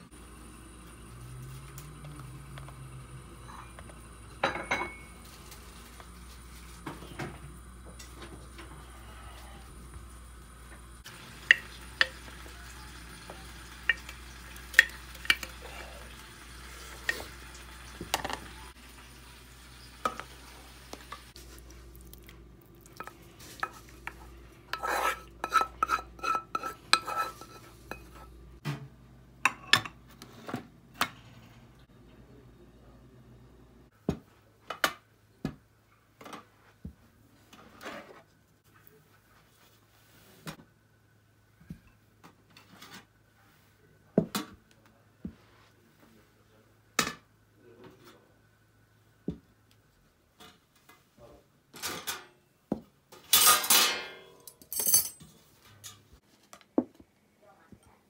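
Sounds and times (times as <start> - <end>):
spoon stirring and clinking dishes: 11.4 - 17.4, 22.9 - 28.3, 29.5 - 30.0.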